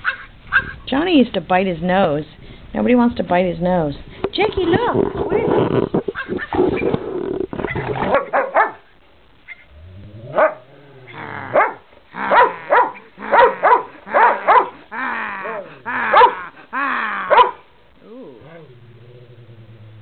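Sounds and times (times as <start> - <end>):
dog barking: 0.0 - 0.8, 8.1 - 8.9, 10.3 - 10.7, 11.5 - 14.8, 16.0 - 16.5, 17.3 - 17.6.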